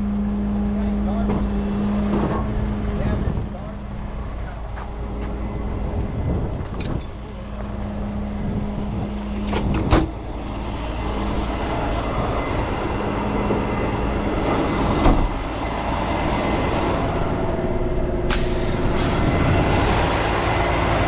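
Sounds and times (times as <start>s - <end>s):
heavy truck engine running: 0.0s - 21.0s
air hissing: 1.4s - 2.3s, 18.3s - 20.6s.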